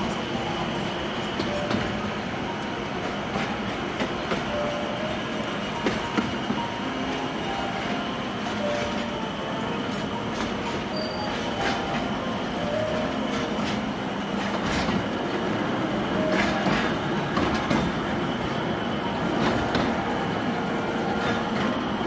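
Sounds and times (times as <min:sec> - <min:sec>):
train rumbling: 0:00.0 - 0:22.0
wheel squeals: 0:07.7 - 0:14.9.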